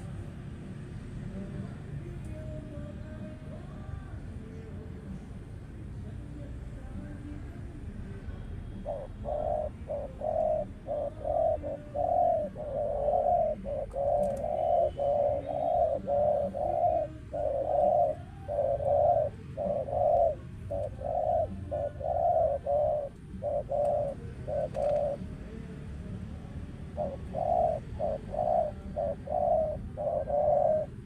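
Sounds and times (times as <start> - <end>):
dove cooing: 0.0 - 0.2, 8.7 - 31.0.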